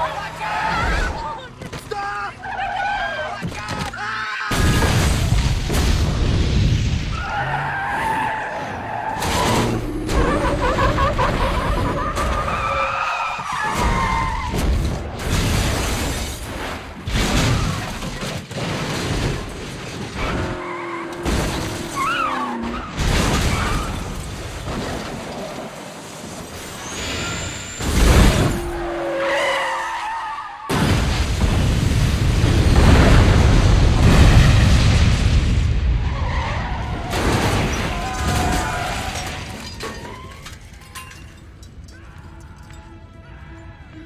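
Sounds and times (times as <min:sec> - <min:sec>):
tyres skidding and squealing: 0:00.0 - 0:04.9, 0:07.0 - 0:15.1, 0:17.4 - 0:30.9, 0:36.0 - 0:44.0
cars crashing: 0:00.0 - 0:41.9
glass shattering: 0:37.1 - 0:41.9.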